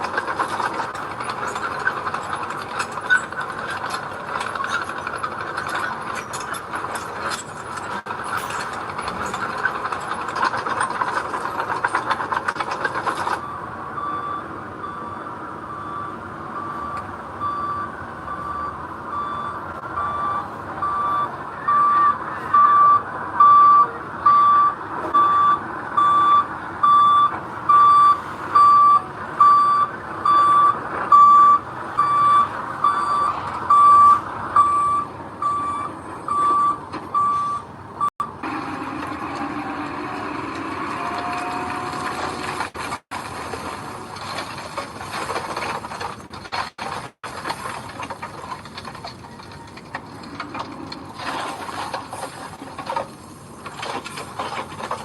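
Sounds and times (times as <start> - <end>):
construction machinery rattling: 0.0 - 55.0
engine running: 0.0 - 55.0
reversing alarm beeps: 13.3 - 38.2.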